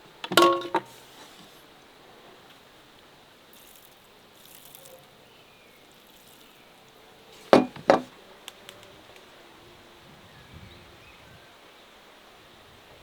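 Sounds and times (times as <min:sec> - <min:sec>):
faint outdoor hiss: 0:00.0 - 0:13.0
cooking utensils clinking: 0:00.2 - 0:01.0, 0:07.4 - 0:08.1.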